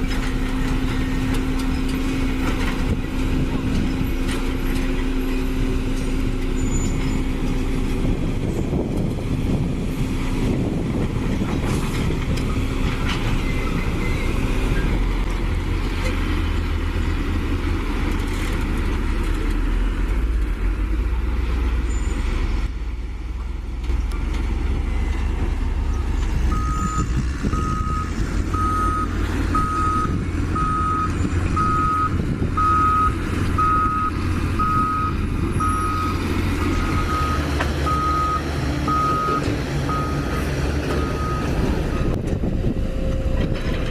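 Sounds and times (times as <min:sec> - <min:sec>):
heavy vehicle engine rumbling: 0:00.0 - 0:43.9
reversing alarm beeps: 0:25.9 - 0:36.2, 0:36.9 - 0:40.4.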